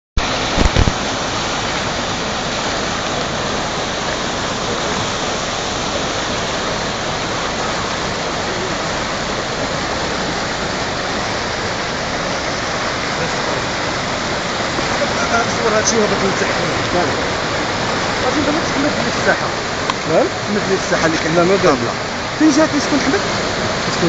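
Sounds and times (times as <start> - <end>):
floodwater rushing: 0.2 - 24.0.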